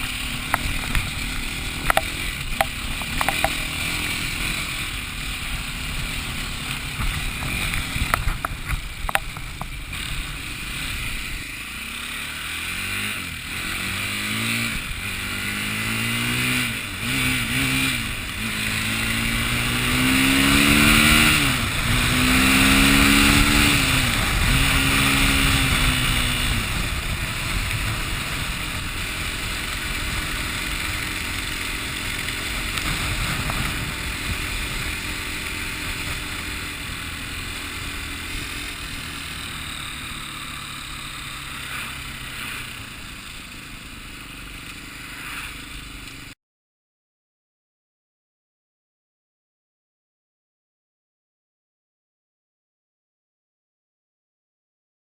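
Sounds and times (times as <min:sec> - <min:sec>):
vehicle engine revving: 0:00.0 - 0:46.4
loud rushing noise: 0:38.2 - 0:43.8.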